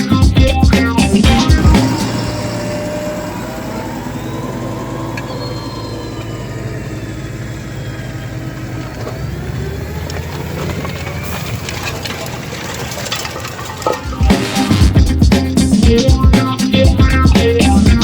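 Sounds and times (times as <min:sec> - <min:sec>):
background music with beat: 0:00.0 - 0:02.7, 0:14.0 - 0:18.0
tractor diesel engine running: 0:00.0 - 0:18.0.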